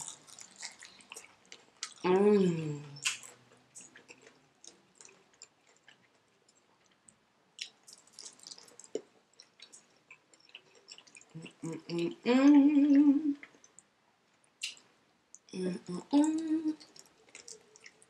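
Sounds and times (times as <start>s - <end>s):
chewing crispy chicken: 0.0s - 2.2s, 2.8s - 11.7s, 16.2s - 18.0s
person humming mmm: 11.4s - 13.4s, 15.6s - 16.8s.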